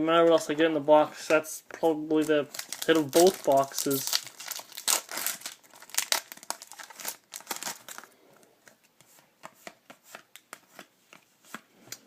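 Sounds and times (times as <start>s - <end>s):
foil wrapper crinkling and tearing: 2.5s - 8.1s.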